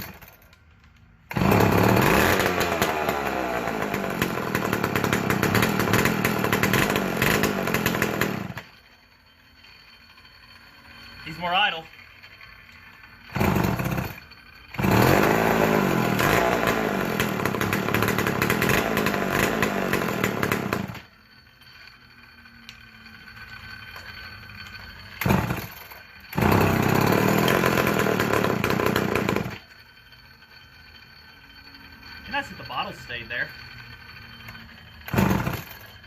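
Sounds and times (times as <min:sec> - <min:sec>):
chainsaw engine revving: 0:01.3 - 0:08.6, 0:13.2 - 0:21.1, 0:25.2 - 0:29.6, 0:35.1 - 0:35.8
chainsaw idling: 0:01.3 - 0:08.7, 0:13.2 - 0:21.1, 0:25.2 - 0:29.8, 0:32.2 - 0:35.9.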